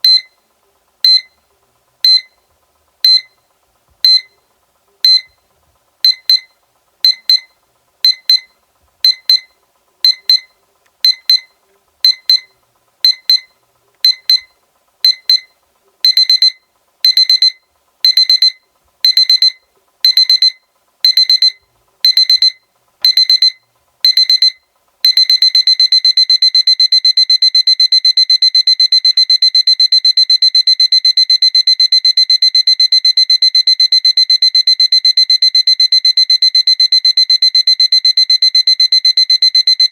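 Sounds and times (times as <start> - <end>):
alarm clock beeping: 12.1 - 12.5, 16.1 - 39.9.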